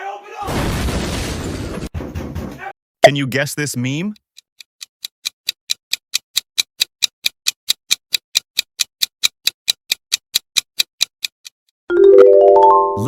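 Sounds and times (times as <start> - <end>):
countdown timer ticking: 3.0 - 11.4.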